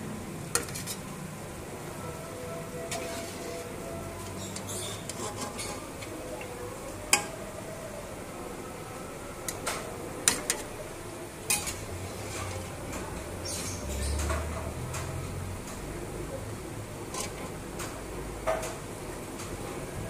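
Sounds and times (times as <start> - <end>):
ghee sizzling gently: 2.6 - 7.6
metal utensil clinking on pan: 11.5 - 11.8.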